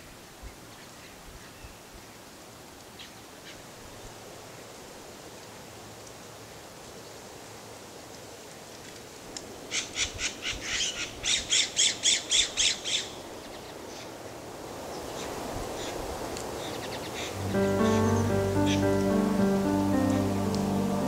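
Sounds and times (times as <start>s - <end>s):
music: 17.4s - 21.0s.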